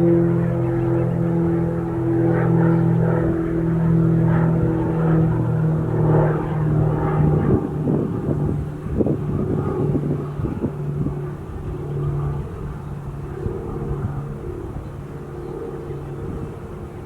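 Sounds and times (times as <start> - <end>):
airliner engines droning: 0.0 - 17.0.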